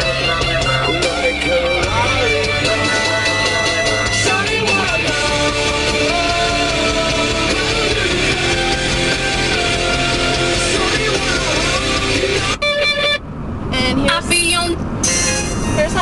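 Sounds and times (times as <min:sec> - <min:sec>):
rock song on car stereo: 0:00.0 - 0:13.2.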